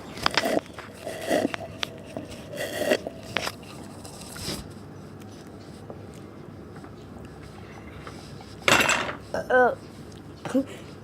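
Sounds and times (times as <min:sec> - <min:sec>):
crunching and chewing cookies: 0:00.0 - 0:08.6.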